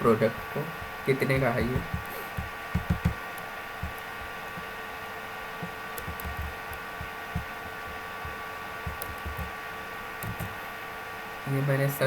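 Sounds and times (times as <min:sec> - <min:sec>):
steady electrical hum: 0:00.0 - 0:12.0
computer keyboard typing: 0:00.8 - 0:04.6, 0:05.6 - 0:09.5, 0:10.2 - 0:10.6.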